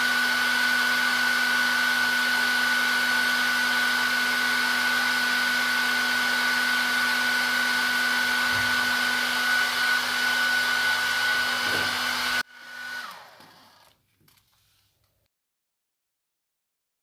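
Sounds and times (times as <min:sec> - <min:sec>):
hair dryer blowing: 0:00.0 - 0:14.0
motor winding down: 0:08.2 - 0:14.0.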